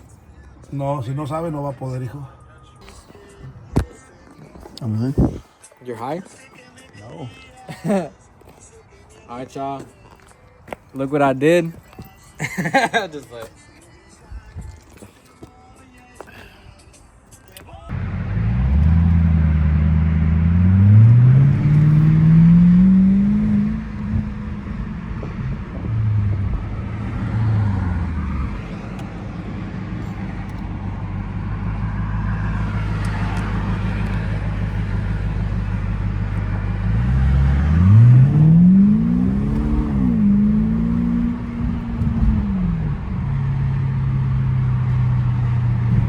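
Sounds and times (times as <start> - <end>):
car engine revving and idling: 17.9 - 46.0.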